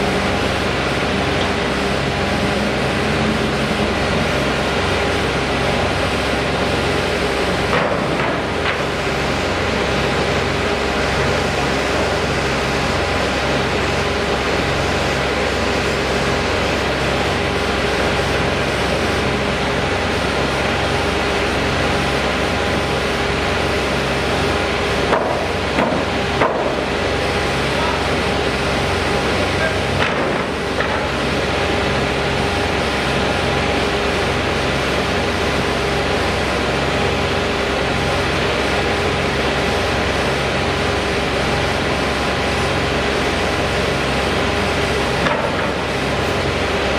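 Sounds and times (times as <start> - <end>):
machine humming: 0.0 - 26.3, 44.1 - 46.9.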